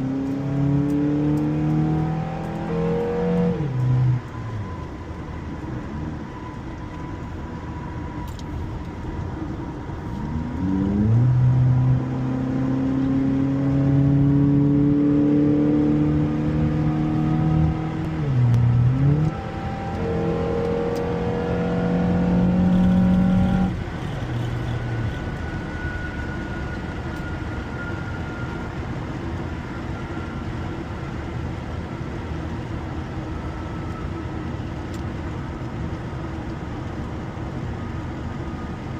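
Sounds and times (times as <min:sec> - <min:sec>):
car engine accelerating: 0:00.0 - 0:05.1, 0:08.2 - 0:27.9
road and tyre noise: 0:00.0 - 0:38.9.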